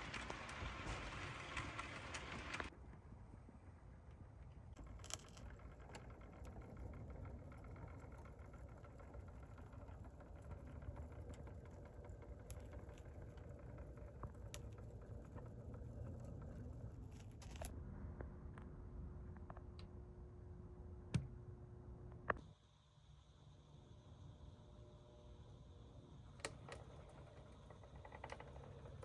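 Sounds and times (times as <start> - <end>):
faint model train motor hum: 0.0 - 17.7, 22.4 - 29.0
light clicks from wheels: 0.0 - 17.8, 26.3 - 29.0.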